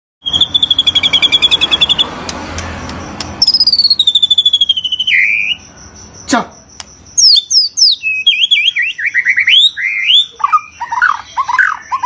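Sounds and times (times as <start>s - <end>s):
songbird rapid high calls: 0.2s - 2.2s, 3.4s - 5.7s, 7.2s - 12.0s.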